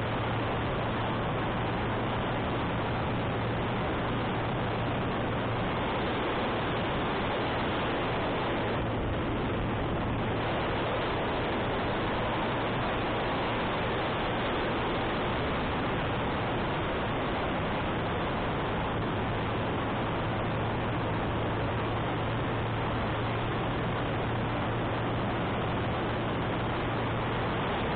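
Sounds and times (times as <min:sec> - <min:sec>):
motorcycle engine hum: 0:00.0 - 0:27.9
wind noise on microphone: 0:00.0 - 0:27.9.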